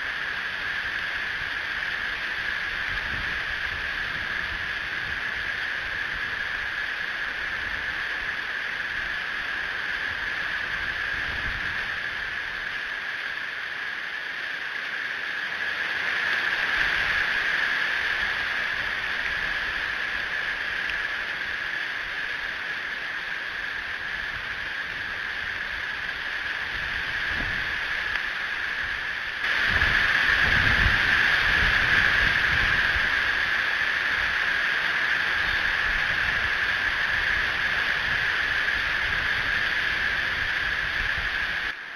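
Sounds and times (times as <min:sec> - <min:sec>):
wind buffeting microphone: 0:26.6 - 0:28.1, 0:28.8 - 0:34.4.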